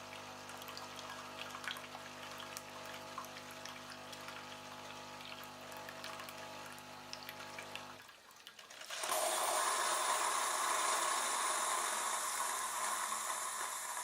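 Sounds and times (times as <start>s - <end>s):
coffee machine pump humming: 0.0s - 8.0s, 8.7s - 14.0s
steam hissing: 9.0s - 14.0s.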